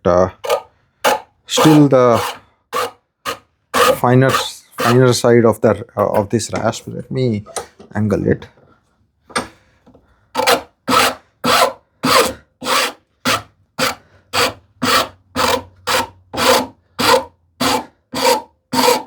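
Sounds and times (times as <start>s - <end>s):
rasp filing wood: 0.4s - 5.2s, 10.4s - 19.0s.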